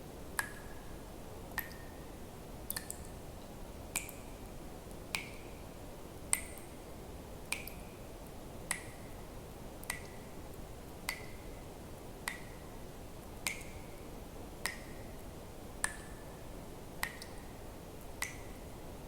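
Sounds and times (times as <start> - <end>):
water drops plinking into water: 0.4 - 0.8, 1.5 - 1.9, 2.7 - 3.2, 3.9 - 4.2, 5.1 - 5.5, 6.3 - 6.7, 7.4 - 7.8, 8.7 - 9.0, 9.8 - 10.2, 11.1 - 11.4, 12.2 - 12.6, 13.4 - 13.8, 15.8 - 16.2, 17.0 - 17.4, 18.2 - 18.6.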